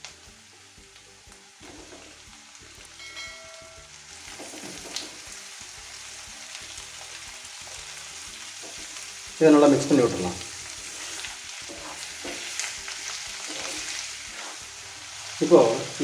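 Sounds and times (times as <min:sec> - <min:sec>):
chicken sizzling in hot oil: 0:00.0 - 0:16.0
brief ringing tone: 0:03.0 - 0:04.0.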